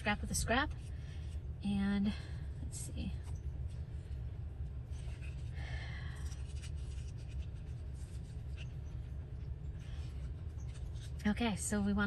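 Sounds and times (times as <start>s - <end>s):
steady low hum: 0.0s - 12.0s
paper rustling: 6.2s - 11.2s.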